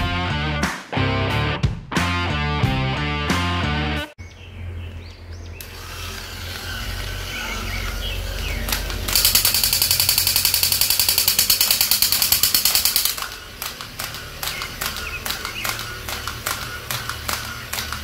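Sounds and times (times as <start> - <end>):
scattered clicks: 7.8 - 18.0
toy machine-gun rattle: 8.2 - 18.0.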